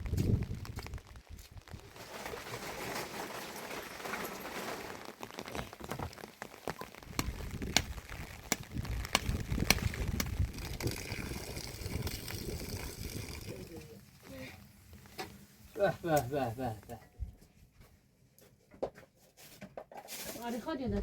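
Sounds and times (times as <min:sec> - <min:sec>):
large raindrops tapping: 0:00.0 - 0:15.3
rain falling: 0:00.0 - 0:17.0.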